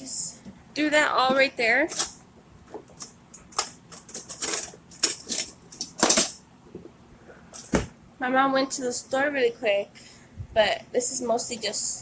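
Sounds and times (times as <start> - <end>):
kitchen rattles and clicks: 1.8 - 2.2, 2.9 - 6.4.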